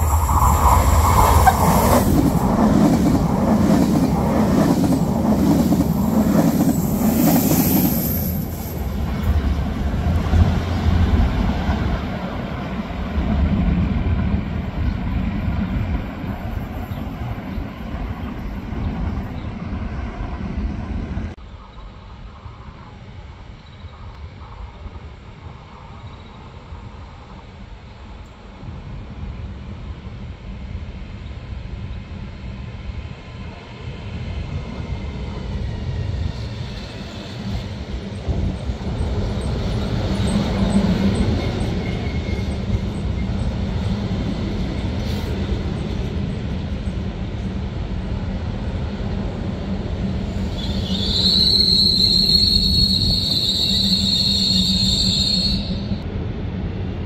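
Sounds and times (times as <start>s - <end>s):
electric train rumbling: 0.0s - 57.0s
high metallic brake squeal: 50.5s - 56.0s.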